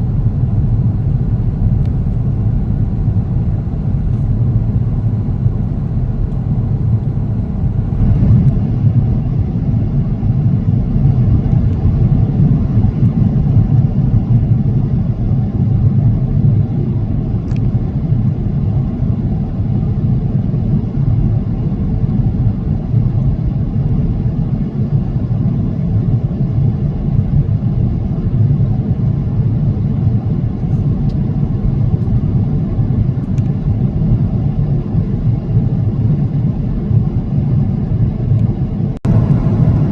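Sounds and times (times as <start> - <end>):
jet engines droning: 0.0 - 39.9
air rushing over fuselage: 30.9 - 39.9.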